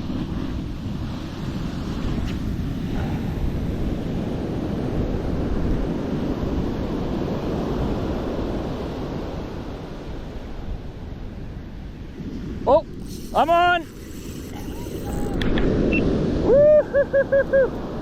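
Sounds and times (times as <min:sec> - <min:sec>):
ocean surf washing on beach: 0:00.0 - 0:18.0
wind buffeting microphone: 0:00.0 - 0:18.0.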